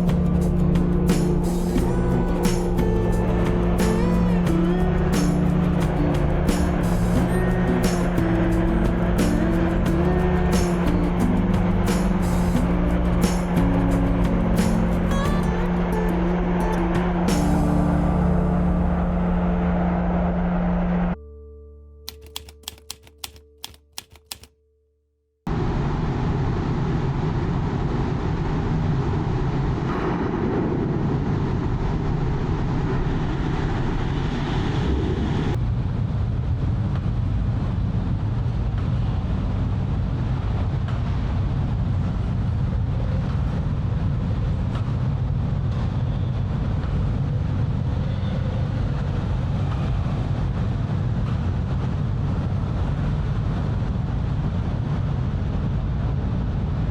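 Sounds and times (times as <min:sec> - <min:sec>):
ship engine rumble: 0:00.0 - 0:21.2
sharp clicks: 0:22.1 - 0:24.5.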